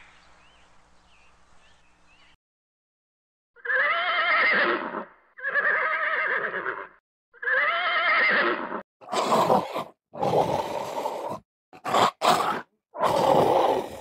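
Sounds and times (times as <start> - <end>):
horse whinnying: 3.6 - 14.0.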